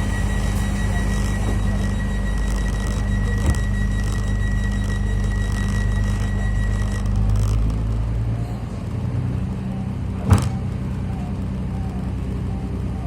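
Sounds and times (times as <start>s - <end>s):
thin high tone: 0.0s - 7.2s
train machinery humming: 0.0s - 13.0s.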